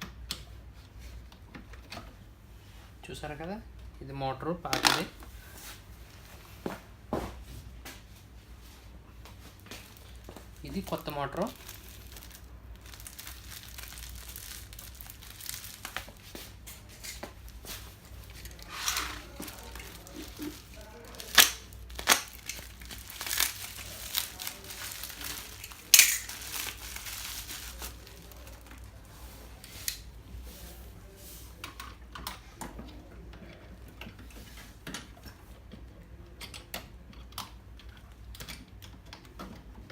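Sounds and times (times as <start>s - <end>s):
plastic wrapping crinkling: 9.4s - 31.2s.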